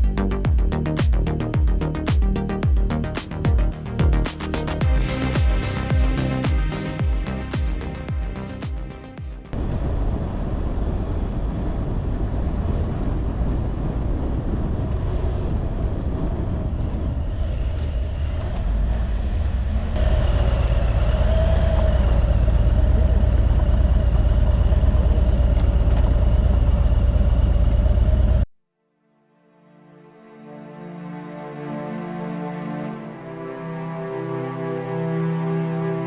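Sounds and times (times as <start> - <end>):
motorcycle engine running: 0.0 - 9.4, 20.0 - 28.4
steady whine: 0.0 - 12.0
road and wind noise: 0.3 - 28.4.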